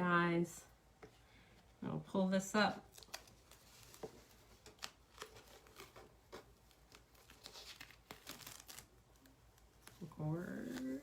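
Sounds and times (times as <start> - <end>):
plastic film peeling and crinkling: 2.8 - 11.0.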